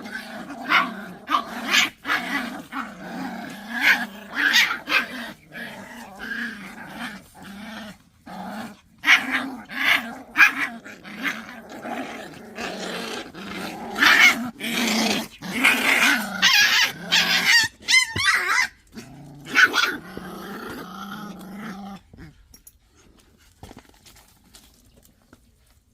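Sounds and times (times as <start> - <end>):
dogs growling: 0.0 - 17.8, 18.4 - 23.9
dog yelping: 16.4 - 18.8.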